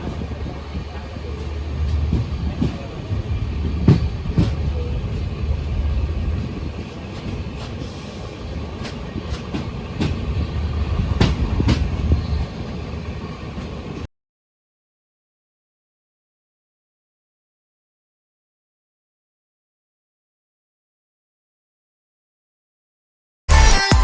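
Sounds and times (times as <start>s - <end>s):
passenger train rumbling: 0.0s - 14.1s
wheels clacking: 0.0s - 14.1s.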